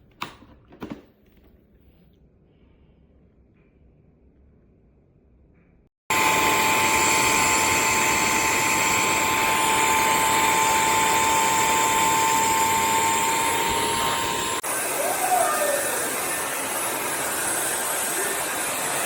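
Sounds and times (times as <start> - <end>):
vacuum motor whining: 6.1 - 19.0.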